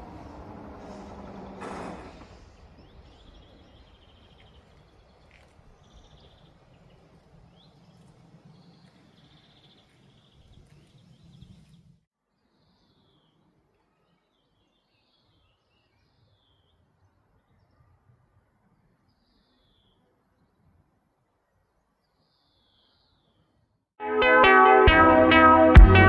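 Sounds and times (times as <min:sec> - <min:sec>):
train passing: 0:00.0 - 0:05.2
birds chirping: 0:00.0 - 0:11.9.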